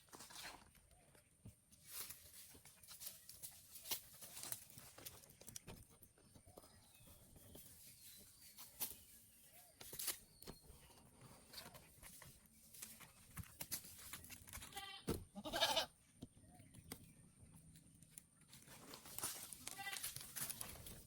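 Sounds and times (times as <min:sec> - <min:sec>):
goat bleating: 0:14.7 - 0:16.0, 0:19.6 - 0:20.2.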